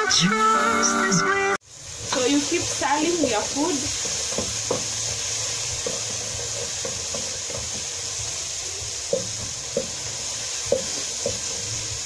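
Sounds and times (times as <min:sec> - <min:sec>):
tomatoes sizzling in oil: 0:00.0 - 0:12.0
wooden spoon knocking on pot: 0:04.0 - 0:05.0, 0:09.0 - 0:11.6.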